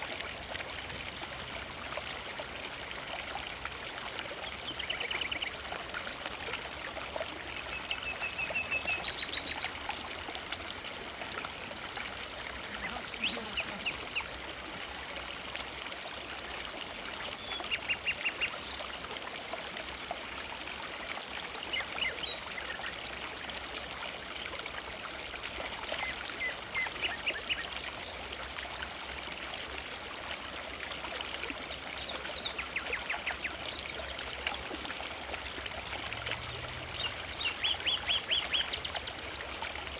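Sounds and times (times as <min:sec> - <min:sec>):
river water flowing: 0:00.0 - 0:39.9
bird calls and chirps: 0:12.7 - 0:14.4.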